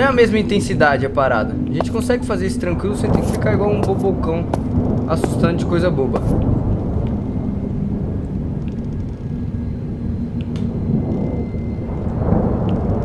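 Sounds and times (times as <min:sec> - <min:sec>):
loud low rumble: 0:00.0 - 0:13.0
low drone: 0:00.0 - 0:13.0.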